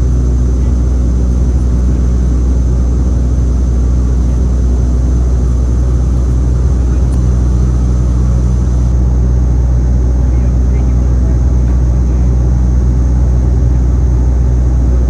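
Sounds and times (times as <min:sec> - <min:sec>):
turboprop engines droning: 0:00.0 - 0:15.0.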